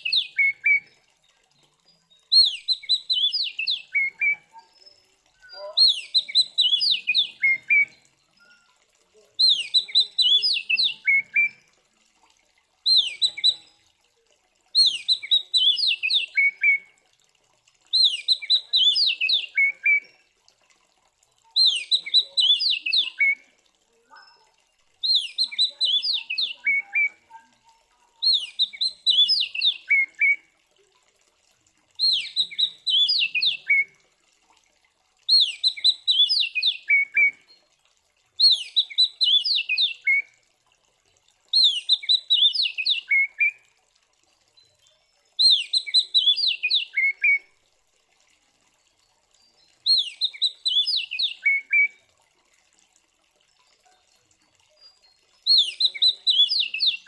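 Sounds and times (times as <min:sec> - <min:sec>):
bird whistled song phrases: 0:00.0 - 0:01.0, 0:02.3 - 0:08.8, 0:09.4 - 0:11.6, 0:12.9 - 0:13.8, 0:14.8 - 0:16.9, 0:17.9 - 0:20.2, 0:21.6 - 0:23.4, 0:25.0 - 0:27.6, 0:28.2 - 0:30.4, 0:32.0 - 0:34.0, 0:35.3 - 0:37.6, 0:38.4 - 0:40.3, 0:41.5 - 0:43.6, 0:45.4 - 0:47.5, 0:49.8 - 0:52.0, 0:54.8 - 0:57.0.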